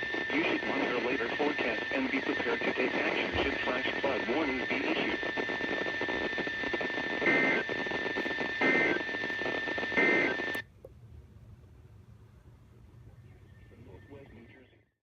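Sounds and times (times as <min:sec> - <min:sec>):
hissy radio broadcast: 0:00.0 - 0:10.6, 0:13.0 - 0:15.0
warbling data bursts: 0:00.0 - 0:10.6.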